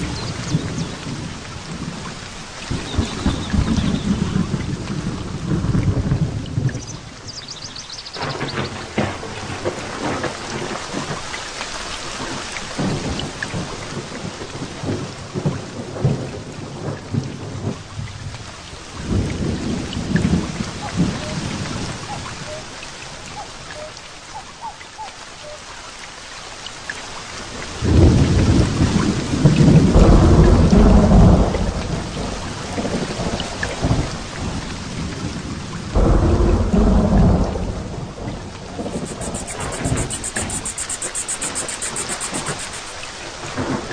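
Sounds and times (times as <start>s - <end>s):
rolling thunder: 0.0s - 7.2s, 12.2s - 22.7s, 27.8s - 40.8s
heavy rain falling: 0.0s - 43.9s.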